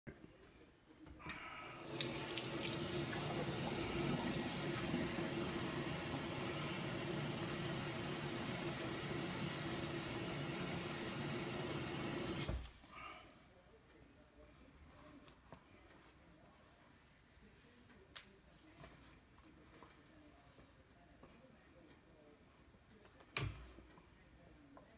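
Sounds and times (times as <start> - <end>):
water running from a tap: 1.8 - 12.6.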